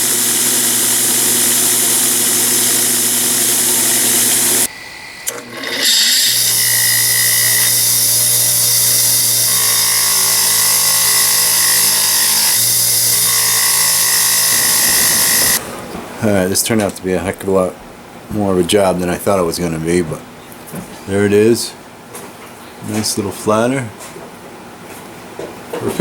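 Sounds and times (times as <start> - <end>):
electric grinder grinding steel: 0.0 - 15.6.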